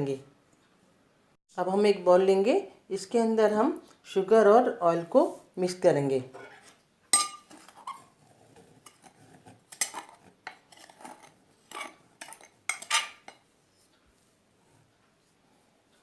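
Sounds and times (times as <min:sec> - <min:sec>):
spoon clinking in mixing bowl: 0:07.1 - 0:08.0, 0:11.7 - 0:13.4.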